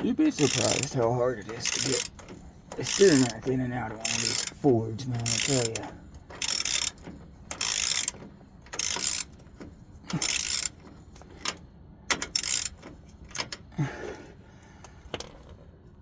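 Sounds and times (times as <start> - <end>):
ratchet wrench clicking: 0.4 - 4.6, 5.2 - 13.6.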